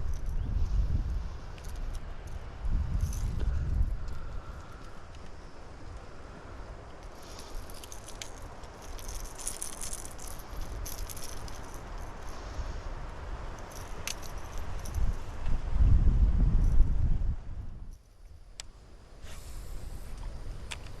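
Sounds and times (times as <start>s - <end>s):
light rattling and clicking: 6.9s - 12.4s, 13.6s - 15.1s.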